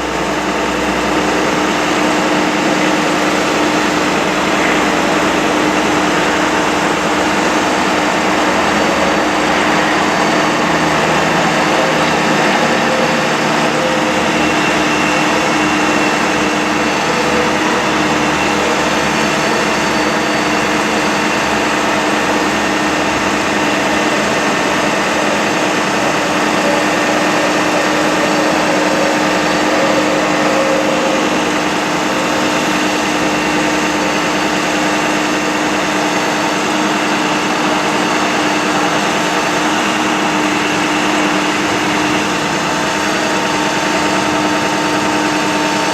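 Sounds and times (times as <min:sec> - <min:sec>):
truck engine running: 0:00.0 - 0:45.9.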